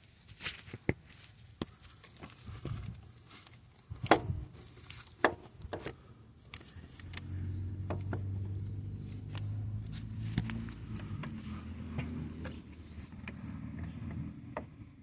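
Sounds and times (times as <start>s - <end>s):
low motor hum: 6.7s - 15.0s.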